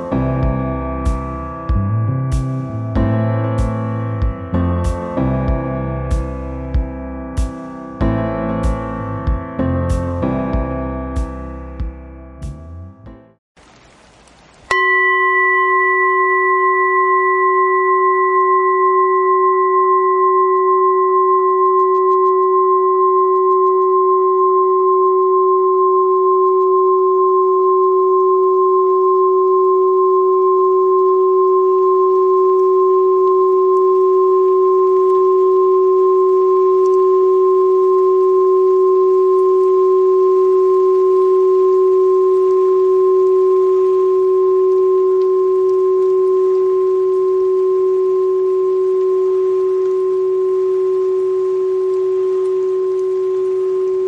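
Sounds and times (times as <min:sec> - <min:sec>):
singing bowl ringing: 0:14.7 - 0:46.9.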